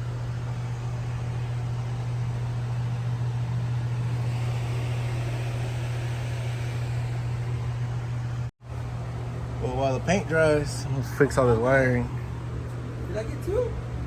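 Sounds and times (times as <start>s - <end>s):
low machine hum: 0.0s - 14.0s
spray gun hissing: 2.9s - 8.5s.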